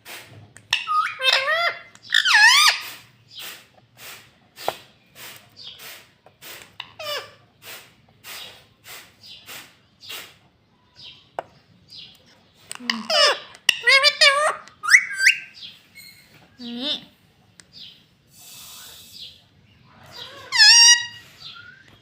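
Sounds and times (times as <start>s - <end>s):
parrot squawking: 0.7s - 3.6s, 6.8s - 7.4s, 12.8s - 17.1s, 19.9s - 21.9s
parrot raspy chirps: 0.7s - 4.7s, 5.7s - 8.5s, 12.7s - 16.3s, 19.9s - 21.9s.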